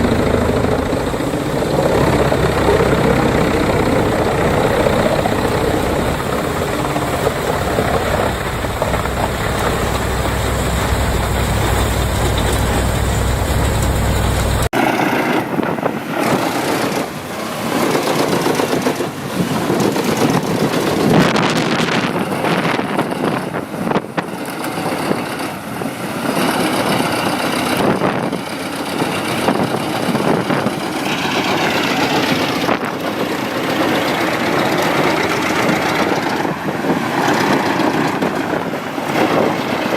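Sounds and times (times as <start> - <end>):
wood chipper engine running: 0.0 - 15.2, 28.5 - 39.8.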